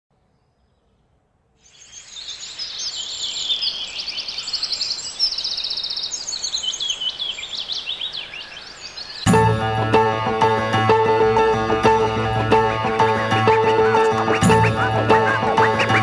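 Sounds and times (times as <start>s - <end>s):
faint outdoor hiss: 0.2s - 9.3s
birds chirping and trilling: 0.2s - 16.0s.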